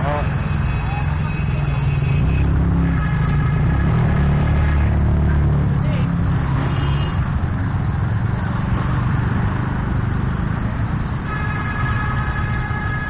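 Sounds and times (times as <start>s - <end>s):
high-pitched vehicle tone: 0.0s - 7.2s.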